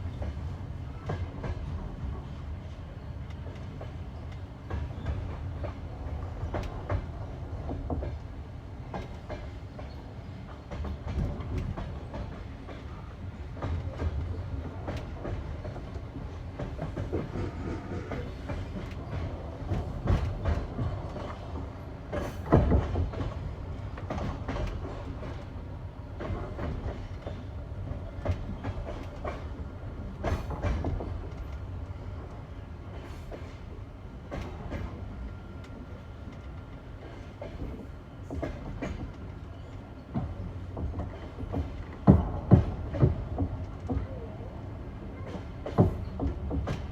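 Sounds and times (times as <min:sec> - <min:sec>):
train rolling rumble: 0:00.0 - 0:46.9
train wheels clattering over joints: 0:03.4 - 0:35.2, 0:36.3 - 0:44.3, 0:45.1 - 0:46.9.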